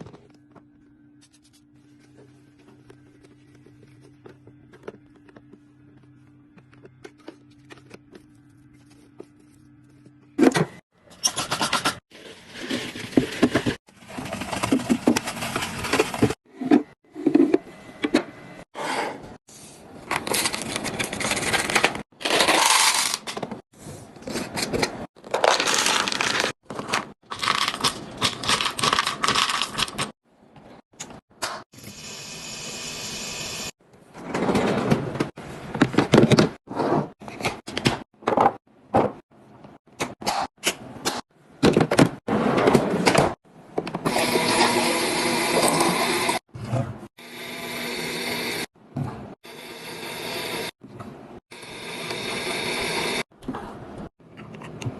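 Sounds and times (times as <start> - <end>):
packaging and containers rustling: 25.2 - 30.1.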